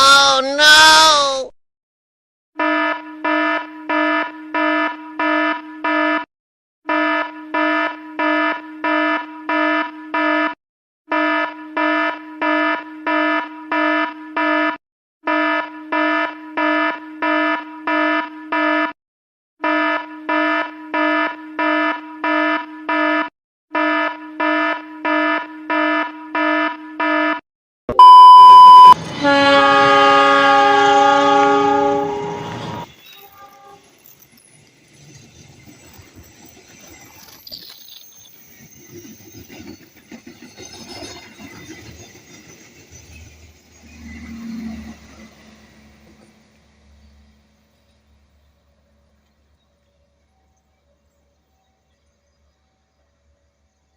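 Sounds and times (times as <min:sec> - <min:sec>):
train horn: 0:02.6 - 0:06.3, 0:06.9 - 0:19.0, 0:19.6 - 0:27.4, 0:29.0 - 0:33.9, 0:43.9 - 0:46.0
loud beep: 0:27.9 - 0:29.0.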